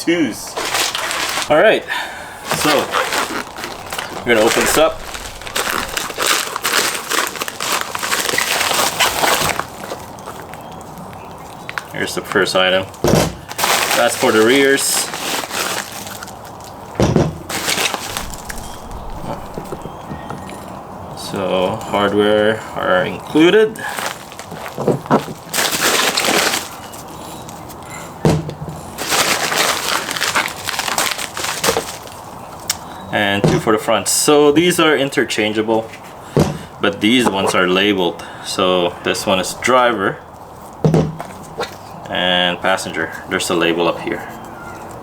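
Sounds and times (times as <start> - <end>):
packaging rustling and crinkling: 0.4 - 12.0, 12.8 - 16.9, 17.5 - 20.8, 23.8 - 27.8, 29.0 - 32.6.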